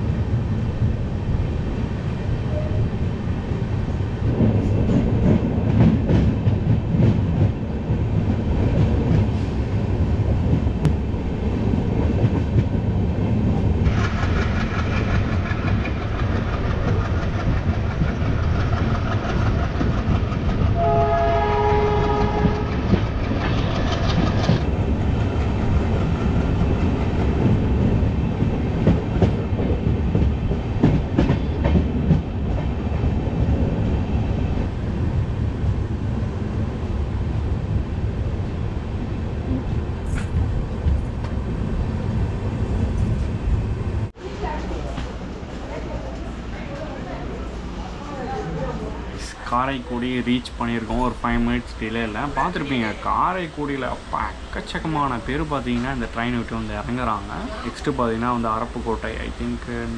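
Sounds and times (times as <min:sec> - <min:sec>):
train wheels clattering on rails: 0:04.2 - 0:35.8
locomotive horn: 0:20.8 - 0:22.8.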